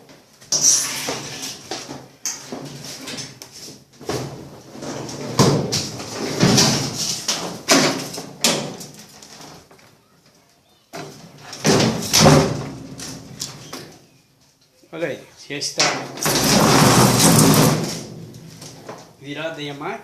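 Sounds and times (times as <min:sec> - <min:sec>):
cabinet scraping on floor: 0:00.6 - 0:02.0, 0:16.2 - 0:19.0.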